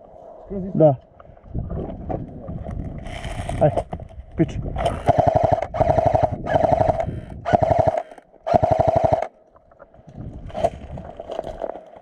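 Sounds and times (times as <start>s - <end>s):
airsoft gun automatic bursts: 4.8s - 9.3s.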